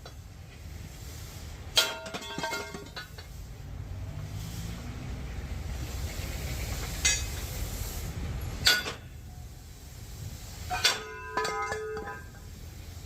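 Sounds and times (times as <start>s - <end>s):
low machinery rumble: 0.0s - 11.1s
heavy metal parts clanking: 1.7s - 3.4s, 8.5s - 9.2s, 10.7s - 12.5s
metallic ringing: 10.7s - 12.5s.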